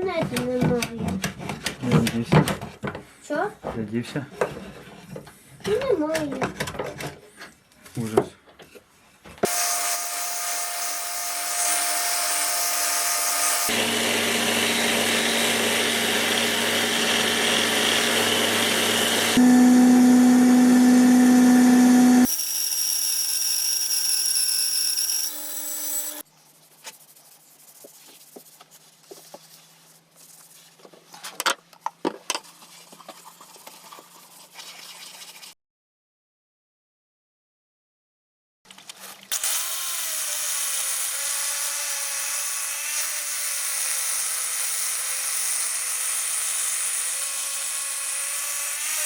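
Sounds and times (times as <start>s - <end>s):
taps and clicks of hand work: 0.0s - 3.1s
power tools whining: 9.4s - 26.2s, 39.3s - 49.0s.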